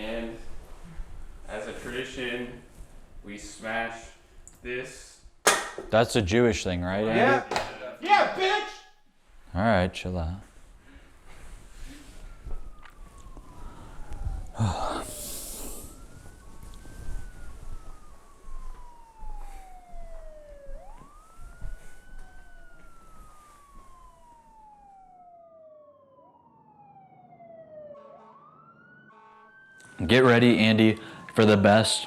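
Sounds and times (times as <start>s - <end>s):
siren wailing: 7.0s - 8.8s, 11.3s - 32.0s.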